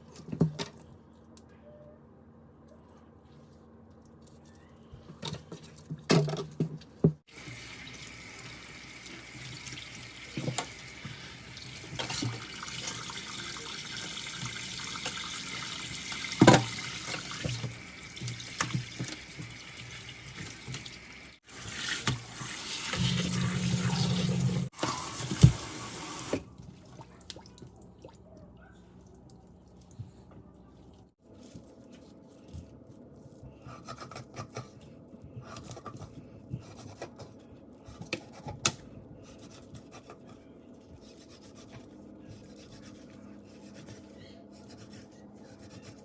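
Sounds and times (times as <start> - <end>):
tap running into a sink: 14.1 - 21.0, 21.8 - 26.4.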